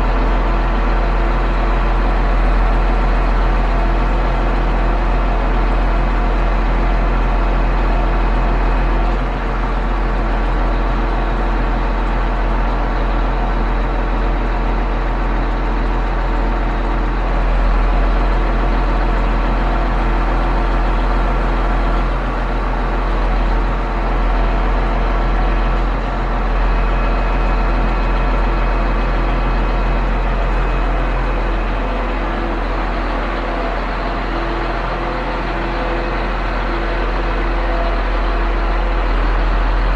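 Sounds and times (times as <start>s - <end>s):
truck diesel engine running: 0.0s - 39.9s.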